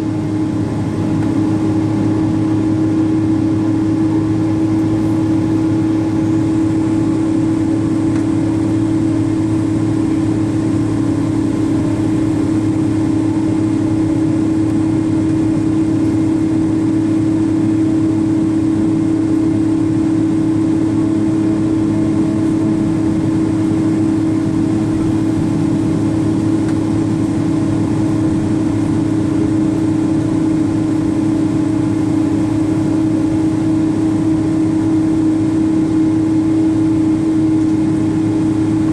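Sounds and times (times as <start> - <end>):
airplane cabin hum: 0.0 - 38.9.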